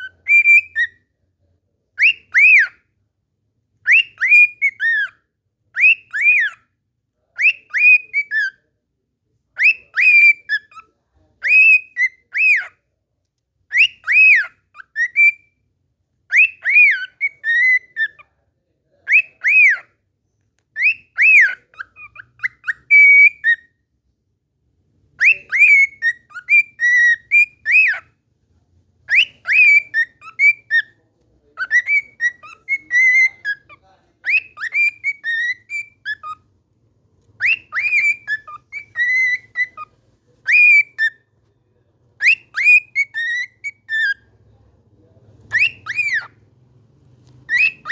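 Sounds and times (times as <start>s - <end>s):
cockatiel whistling a tune: 0.0s - 1.0s, 2.0s - 2.8s, 3.8s - 5.1s, 5.8s - 6.6s, 7.4s - 8.6s, 9.6s - 10.8s, 11.4s - 12.7s, 13.7s - 15.6s, 16.3s - 18.2s, 19.0s - 19.9s, 20.8s - 23.7s, 25.2s - 28.1s, 29.1s - 31.0s, 31.6s - 36.4s, 37.4s - 41.3s, 42.2s - 44.2s, 45.5s - 46.3s, 47.5s - 47.9s.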